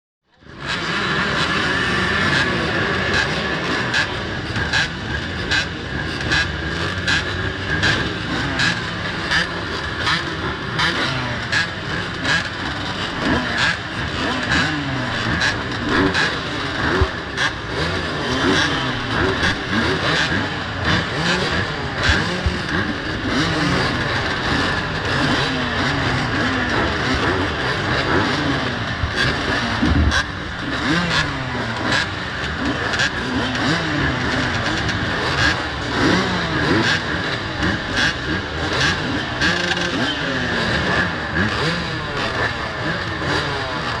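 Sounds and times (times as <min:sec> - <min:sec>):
dirt bike engine revving: 0:00.4 - 0:44.0.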